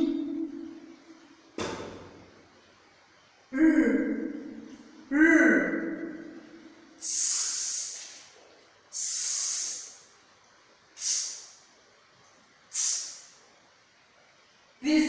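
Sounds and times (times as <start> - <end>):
woman making hissing sounds: 7.0 - 10.1, 11.0 - 11.6, 12.7 - 13.4.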